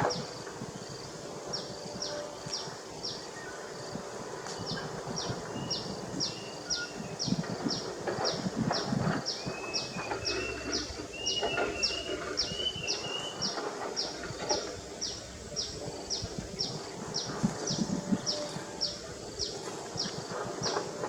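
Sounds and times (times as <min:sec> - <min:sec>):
wavering animal calls: 0:04.8 - 0:21.0.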